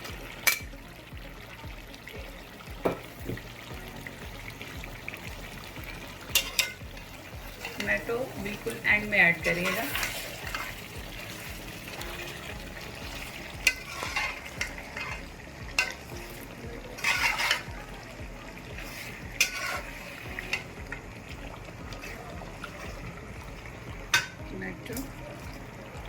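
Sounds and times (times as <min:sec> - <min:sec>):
food sizzling in a pot: 0:00.0 - 0:26.0
spoon stirring and scraping pot: 0:06.1 - 0:18.0, 0:18.6 - 0:20.9, 0:21.8 - 0:24.4.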